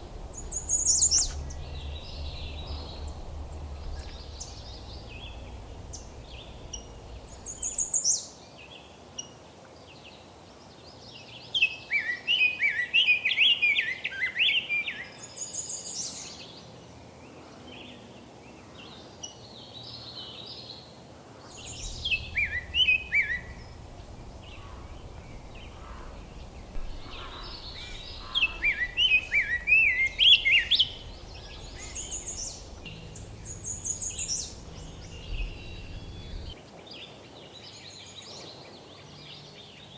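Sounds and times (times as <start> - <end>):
songbird warbling song: 0.0 - 9.3, 21.4 - 39.9.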